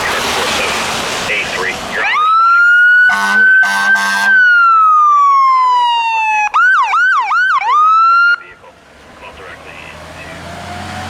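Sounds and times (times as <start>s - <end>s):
electronic siren wailing and yelping: 2.0s - 8.4s
vehicle horn blasts: 3.1s - 4.4s.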